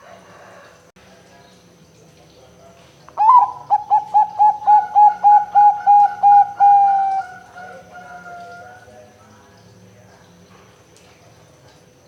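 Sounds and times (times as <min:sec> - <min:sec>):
dove cooing: 0:03.2 - 0:08.9.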